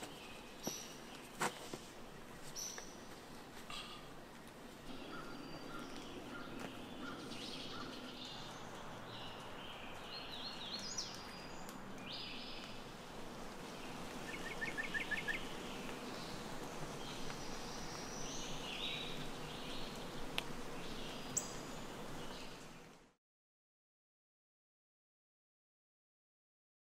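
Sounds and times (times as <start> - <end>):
songbirds singing: 0.0 - 23.0
steady background hiss: 0.0 - 23.2
bird trill: 4.9 - 8.5, 14.3 - 15.6.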